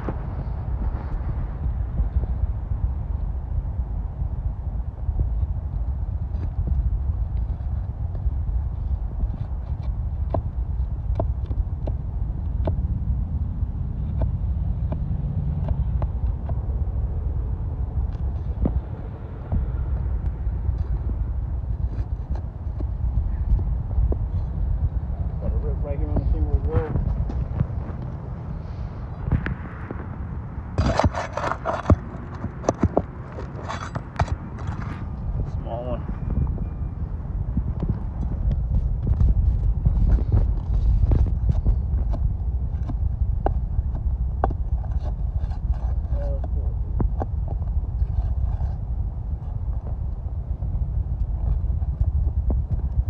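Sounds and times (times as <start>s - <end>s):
wind rumbling on microphone: 0.0s - 53.0s.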